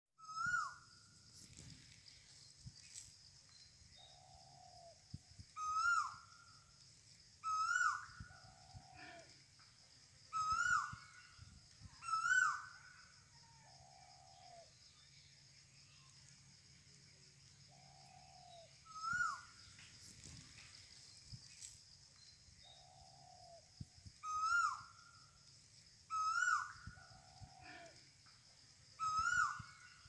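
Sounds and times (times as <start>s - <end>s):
lower longer bird call: 0.2s - 0.9s, 4.0s - 6.6s, 7.4s - 9.5s, 10.2s - 14.8s, 17.7s - 19.6s, 24.2s - 25.1s, 26.1s - 28.2s, 28.9s - 30.0s.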